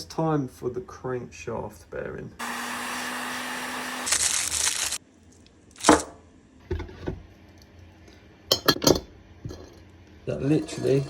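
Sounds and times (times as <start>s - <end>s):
hot-air blower humming: 2.4s - 4.3s.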